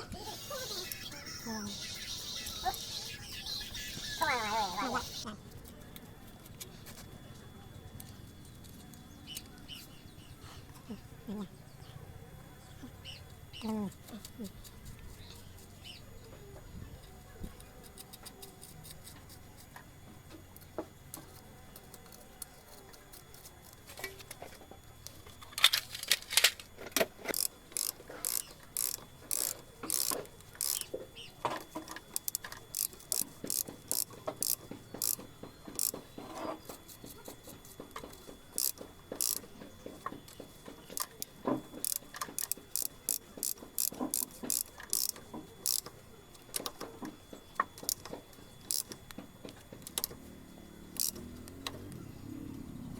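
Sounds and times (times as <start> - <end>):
ratchet wrench clicking: 27.3 - 30.9, 32.0 - 35.2, 35.8 - 36.0, 38.6 - 39.4, 41.8 - 45.9, 48.7 - 49.0, 51.0 - 51.7.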